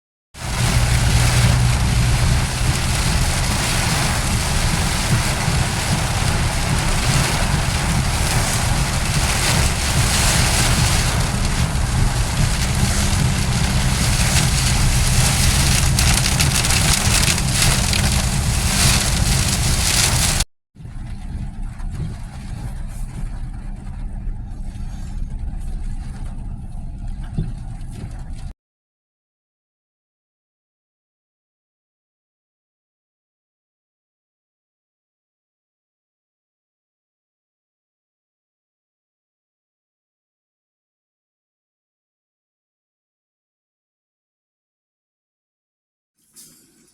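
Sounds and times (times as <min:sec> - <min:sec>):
rain and wind hiss: 0:00.4 - 0:20.4
engine and road rumble: 0:00.4 - 0:28.5.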